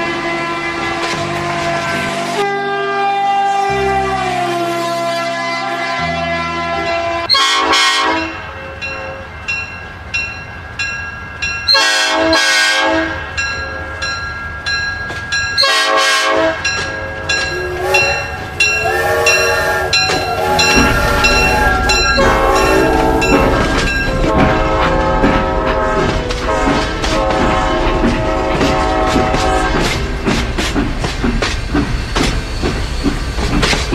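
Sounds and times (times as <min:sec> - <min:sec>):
toy train horn: 0:00.1 - 0:08.4, 0:11.7 - 0:13.2, 0:15.6 - 0:29.9
clickety-clack ticking: 0:16.7 - 0:33.9
wavering electronic tones: 0:17.4 - 0:24.3.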